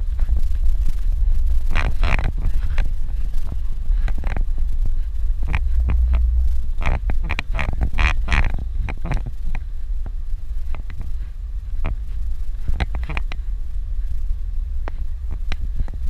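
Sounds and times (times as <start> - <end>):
engine and road rumble: 0.0 - 16.0.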